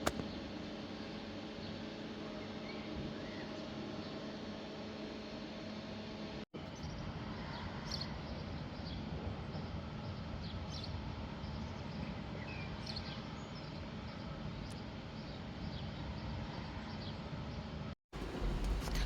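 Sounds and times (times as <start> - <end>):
low background rumble: 18.2 - 19.0.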